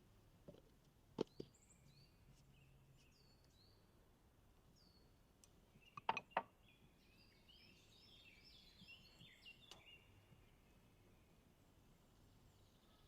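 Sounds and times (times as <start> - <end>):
faint songbirds chirping: 0.0 - 13.0.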